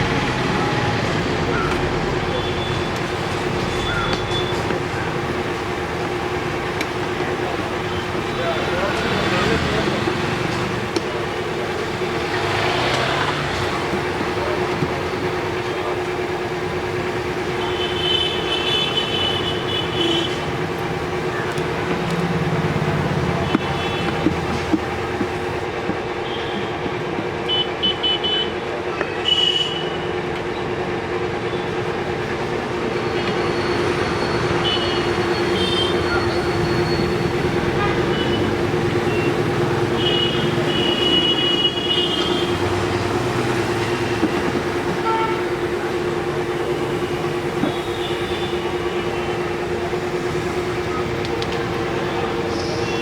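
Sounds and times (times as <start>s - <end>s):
steady two-tone mechanical hum: 0.0s - 12.4s.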